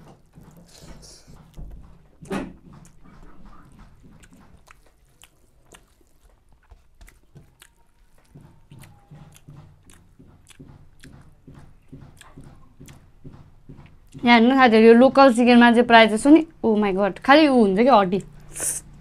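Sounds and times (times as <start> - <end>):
person chewing with mouth clicks: 0.3 - 13.1.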